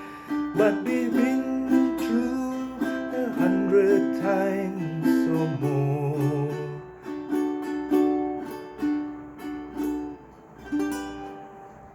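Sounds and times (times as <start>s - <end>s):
ukulele plucked notes: 0.0s - 11.9s.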